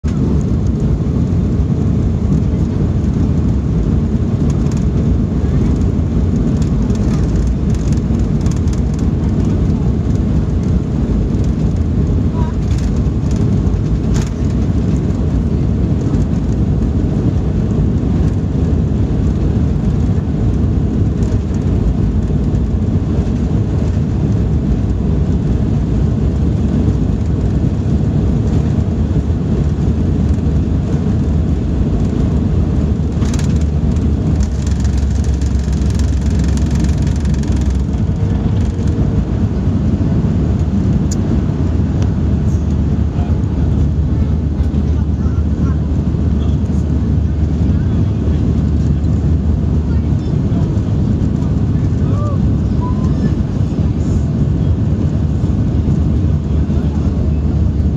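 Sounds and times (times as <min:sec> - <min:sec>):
jet engines roaring: 0:00.0 - 0:57.9.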